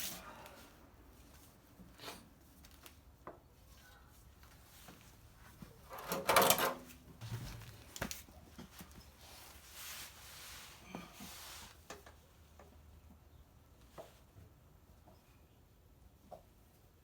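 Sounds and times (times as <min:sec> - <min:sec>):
soft rubbing hiss: 0:07.4 - 0:12.1.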